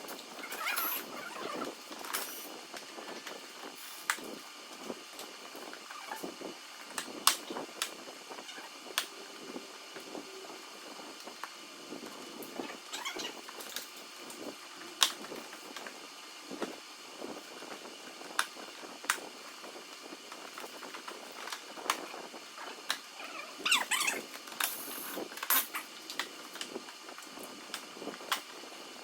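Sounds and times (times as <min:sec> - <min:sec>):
plastic panels squeaking: 0:12.6 - 0:13.4, 0:22.6 - 0:24.3.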